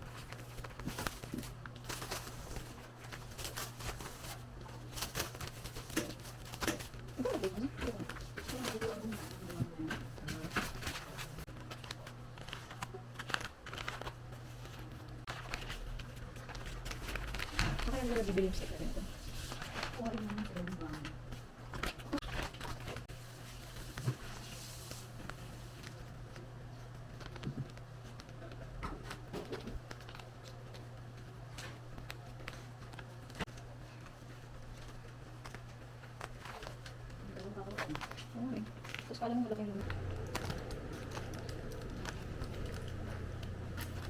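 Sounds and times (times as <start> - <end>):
objects clicking and rustling: 0.0 - 18.8, 25.2 - 44.0
steady low hum: 0.0 - 44.0
food packaging crinkling: 10.4 - 18.6, 34.4 - 44.0.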